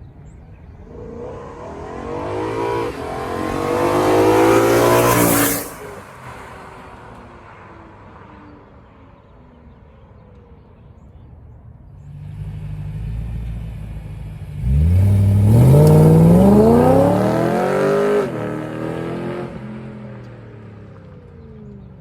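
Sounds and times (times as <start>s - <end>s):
car accelerating past: 0.7s - 8.8s, 14.6s - 21.1s.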